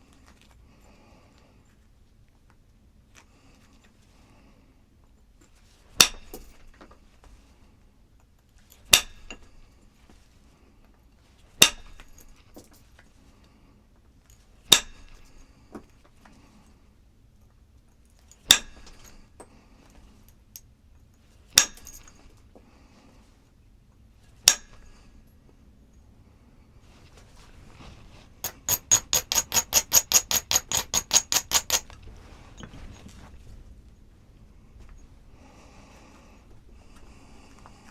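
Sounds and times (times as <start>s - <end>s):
hard objects clinking together: 28.4s - 32.8s.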